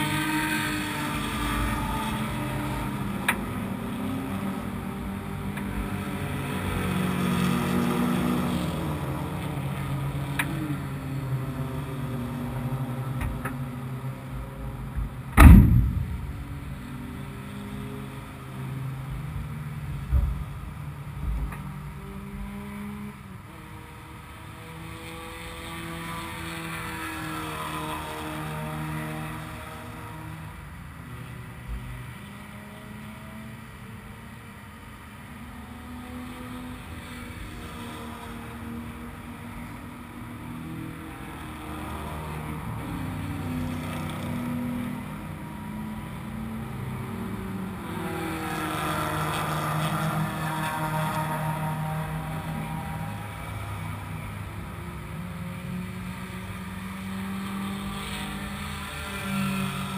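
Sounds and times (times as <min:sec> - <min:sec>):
loud sharp bang: 0:15.4 - 0:16.6.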